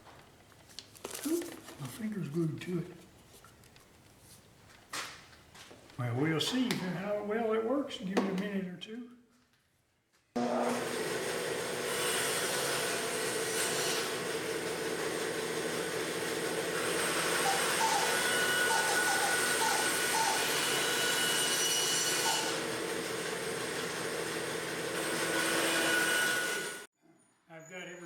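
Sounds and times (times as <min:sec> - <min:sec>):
machine motor hum: 0:10.4 - 0:12.0.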